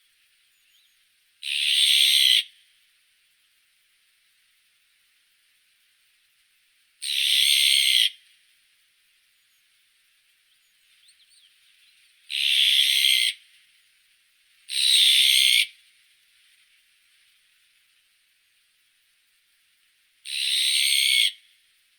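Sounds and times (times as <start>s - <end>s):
magpie harsh rasping calls: 7.0s - 8.1s, 12.3s - 13.4s, 20.3s - 21.4s.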